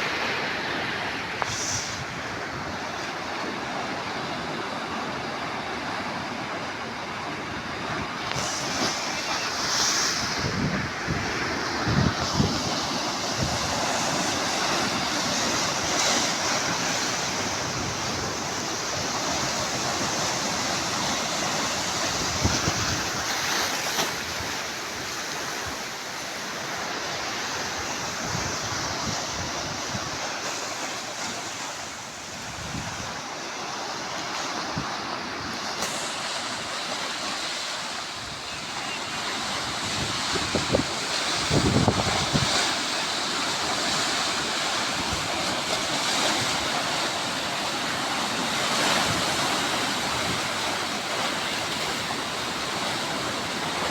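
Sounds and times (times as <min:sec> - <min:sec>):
sea waves washing on shore: 0:00.0 - 0:53.9
wind buffeting microphone: 0:07.7 - 0:25.0, 0:32.3 - 0:33.2, 0:39.2 - 0:44.1.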